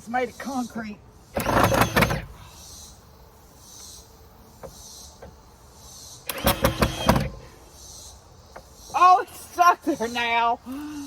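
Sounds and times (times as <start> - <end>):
cicadas buzzing: 0.0 - 11.0
loud whir: 1.4 - 2.4, 6.3 - 7.4.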